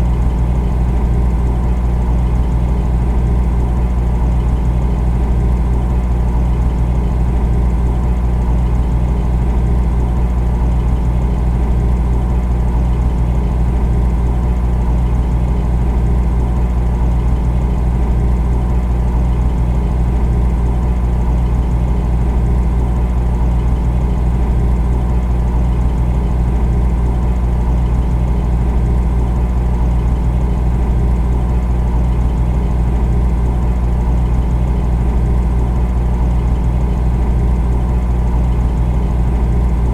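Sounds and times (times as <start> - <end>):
refrigerator compressor humming: 0.0 - 39.9.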